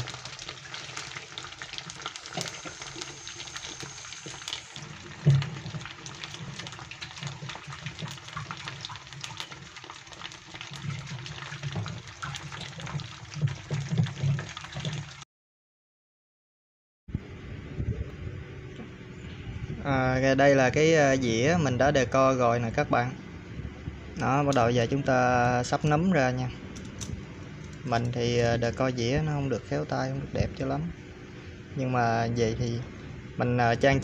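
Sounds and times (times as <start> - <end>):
mushrooms deep-frying in oil: 0.0 - 15.2.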